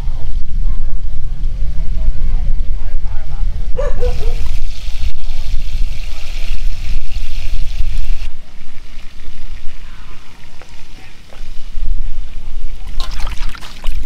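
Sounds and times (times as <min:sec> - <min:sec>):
low rumble: 0:00.0 - 0:10.6
food sizzling in oil: 0:04.1 - 0:09.9.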